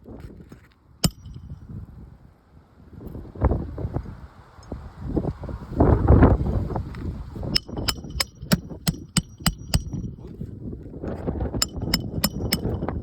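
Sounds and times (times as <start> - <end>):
hammer striking nails: 1.0 - 1.5, 7.6 - 10.1, 11.6 - 13.0.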